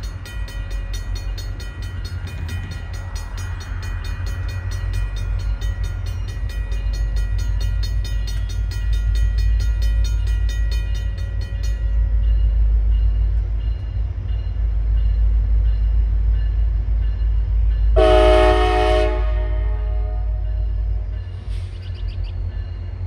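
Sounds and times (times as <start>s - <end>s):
railroad crossing bell ringing: 0.0s - 23.0s
train rumbling past: 0.0s - 23.0s
locomotive air horn blast: 18.0s - 20.4s.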